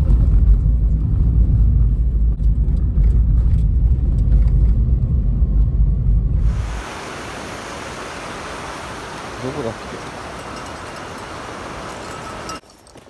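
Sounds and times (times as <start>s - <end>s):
road rumble inside car: 0.0s - 6.9s
mountain stream rushing: 6.4s - 12.6s.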